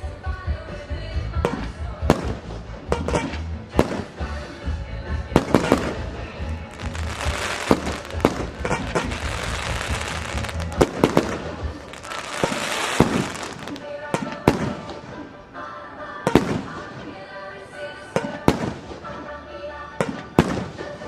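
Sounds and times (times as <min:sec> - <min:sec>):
music with steady beat: 0:00.0 - 0:15.5
dense fireworks crackling: 0:05.3 - 0:15.2, 0:18.3 - 0:19.2, 0:20.1 - 0:21.0
fireworks shells bursting with bangs: 0:05.4 - 0:15.1.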